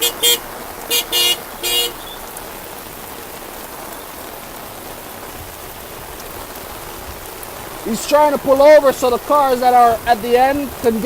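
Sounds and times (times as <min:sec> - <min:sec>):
two-tone car horn honking: 0:00.0 - 0:02.3
rain hissing: 0:00.0 - 0:11.0.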